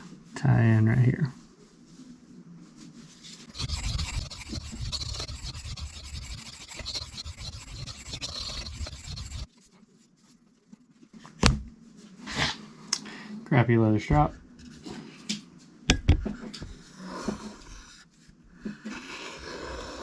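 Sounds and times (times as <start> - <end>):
knife rubbing on sharpening stone: 3.5 - 9.5.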